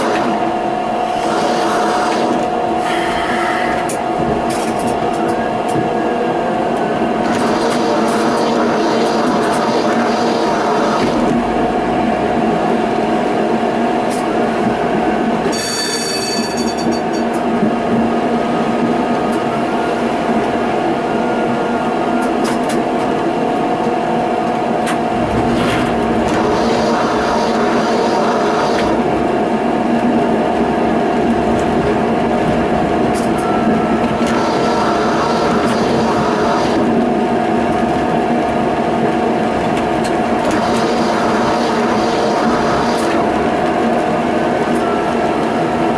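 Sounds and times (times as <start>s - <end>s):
running gear hum: 0.0s - 15.5s
tram wheels rolling on rails: 0.0s - 45.9s.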